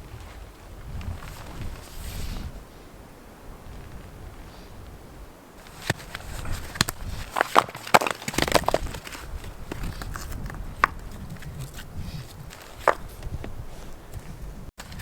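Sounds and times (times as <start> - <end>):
dry twigs snapping and crunching: 5.6 - 13.3.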